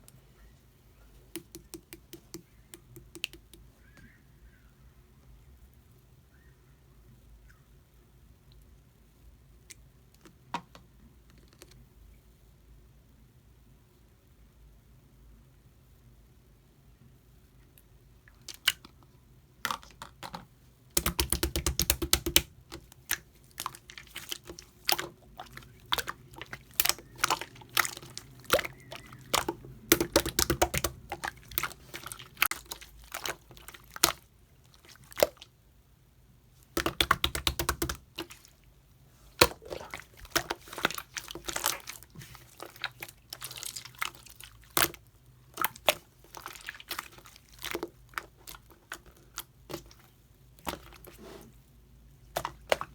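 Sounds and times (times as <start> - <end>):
slime squished by hand: 20.9 - 35.5, 36.7 - 38.6, 39.3 - 51.4, 52.3 - 52.9.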